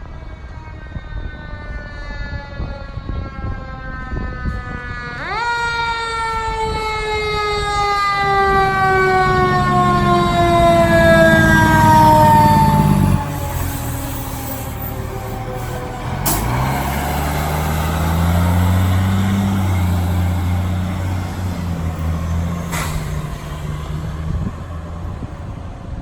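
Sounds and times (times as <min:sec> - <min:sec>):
fire engine siren: 0:00.0 - 0:26.0
truck engine rumble: 0:06.0 - 0:26.0.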